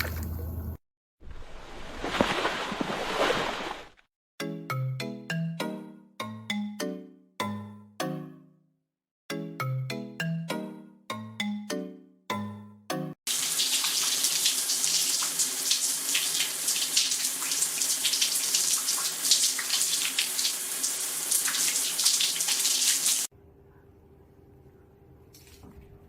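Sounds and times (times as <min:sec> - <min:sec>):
water running from a tap: 0:13.3 - 0:23.3.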